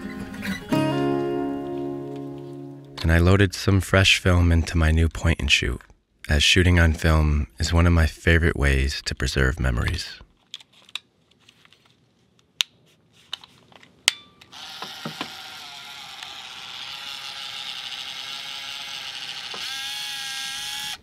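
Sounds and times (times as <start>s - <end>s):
camera motor whirring: 14.5s - 21.0s
small camera clicks: 14.5s - 21.0s.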